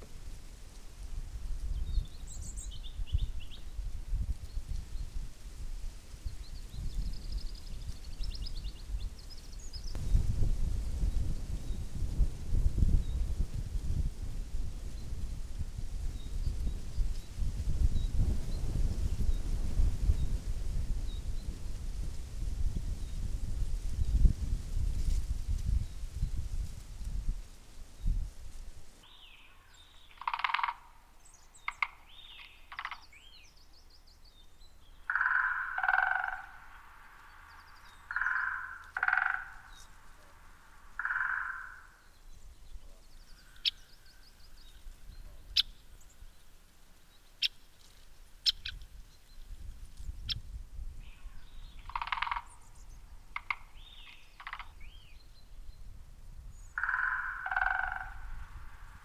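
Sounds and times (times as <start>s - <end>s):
harsh bird calls: 29.1s - 33.5s, 35.0s - 40.0s, 40.9s - 45.8s, 51.0s - 55.2s, 56.6s - 59.0s
short sharp bird ticks: 31.6s - 33.1s, 41.0s - 41.8s, 53.3s - 55.0s.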